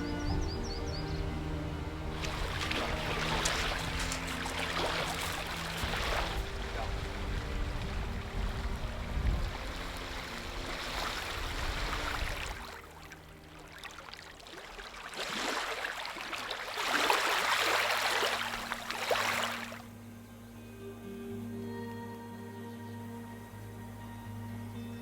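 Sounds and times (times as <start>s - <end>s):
soft musical drone: 0.0s - 16.3s, 16.9s - 25.0s
rushing water: 0.0s - 19.9s.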